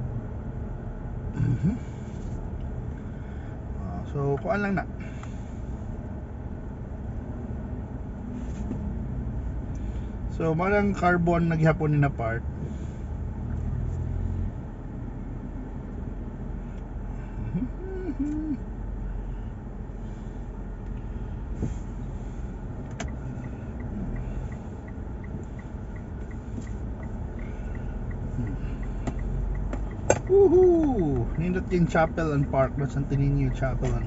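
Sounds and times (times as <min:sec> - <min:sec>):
car cabin road and engine rumble: 0:00.0 - 0:34.0
light even ticking: 0:22.7 - 0:32.6.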